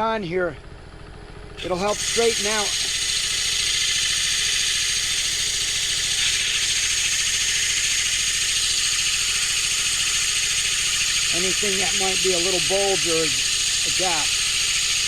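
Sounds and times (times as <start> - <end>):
wood lathe humming: 1.5 - 15.0
sandpaper rubbing wood: 1.6 - 3.0, 4.5 - 15.0.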